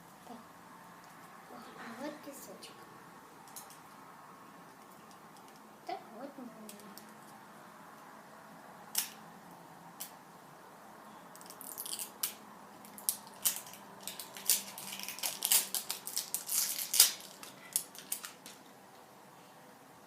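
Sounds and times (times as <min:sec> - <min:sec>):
plastic packaging crinkling: 0:11.4 - 0:18.6.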